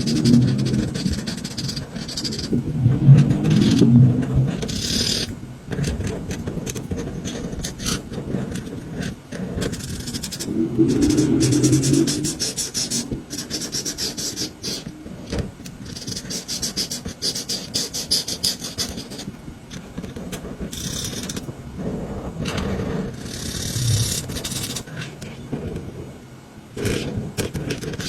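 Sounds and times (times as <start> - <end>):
colouring strokes on paper: 0.0 - 2.5, 9.7 - 14.9.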